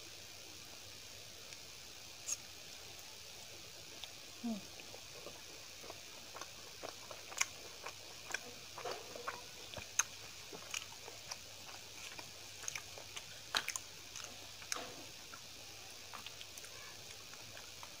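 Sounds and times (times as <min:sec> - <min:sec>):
faint hiss: 0:00.0 - 0:18.0
person chewing food: 0:03.9 - 0:18.0.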